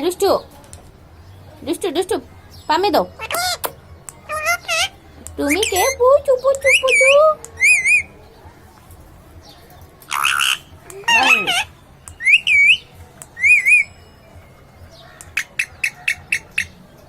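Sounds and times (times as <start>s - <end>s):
parrot calling: 3.0s - 8.2s, 10.1s - 14.0s, 14.9s - 16.8s.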